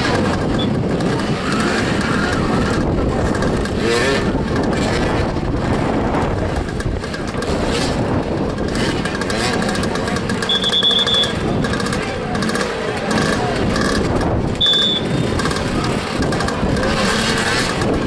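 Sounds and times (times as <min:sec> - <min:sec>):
motorcycles revving: 0:00.0 - 0:18.0.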